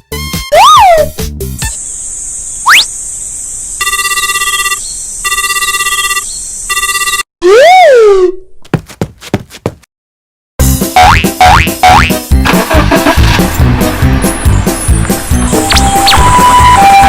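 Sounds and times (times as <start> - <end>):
telephone ringing: 3.8 - 7.3
cartoon boing: 11.0 - 12.1.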